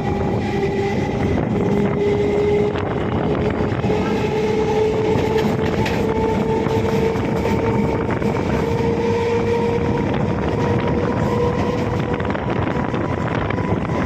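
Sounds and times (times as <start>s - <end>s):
train motor whine: 0.0s - 14.0s
train wheels rumbling: 0.0s - 14.0s.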